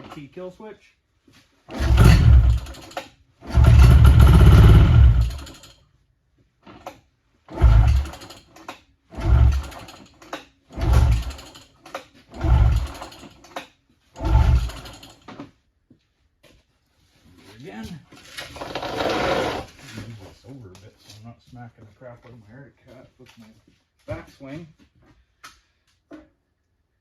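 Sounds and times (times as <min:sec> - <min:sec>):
engine pull-start cord cranking: 0:01.7 - 0:05.8, 0:06.6 - 0:15.6, 0:18.2 - 0:20.0.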